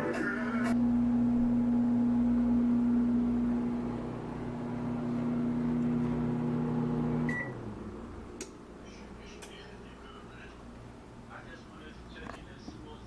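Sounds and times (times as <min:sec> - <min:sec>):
microwave oven humming: 0:00.0 - 0:11.4
microwave beep: 0:05.7 - 0:07.6.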